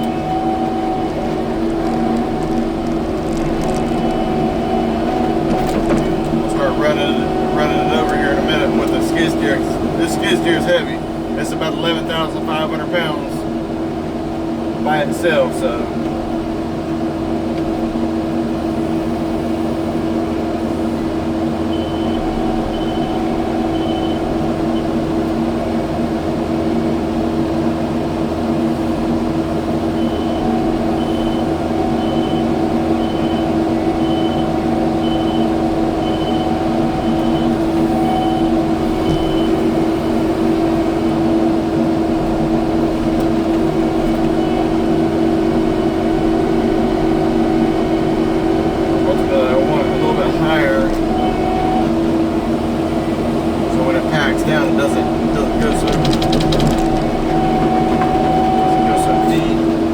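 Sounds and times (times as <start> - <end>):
backup alarm beeping: 0.0 - 13.2, 21.5 - 25.2, 29.8 - 41.2, 43.1 - 52.6, 53.8 - 59.9
diesel engine running: 0.0 - 59.9.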